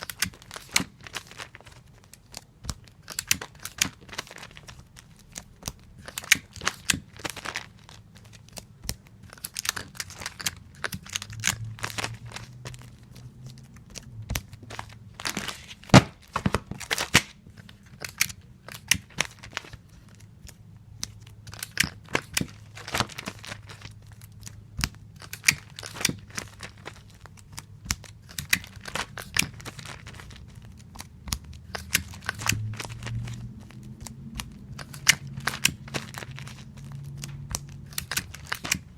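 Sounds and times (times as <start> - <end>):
tape pulled and torn off dispenser: 21.5 - 38.9.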